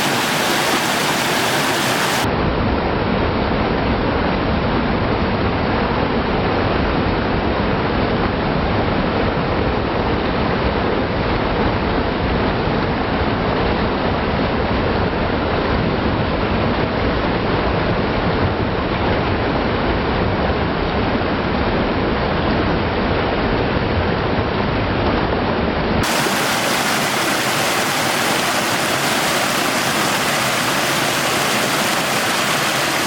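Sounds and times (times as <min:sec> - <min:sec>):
stream rushing over rocks: 0:00.0 - 0:02.3, 0:26.0 - 0:33.0.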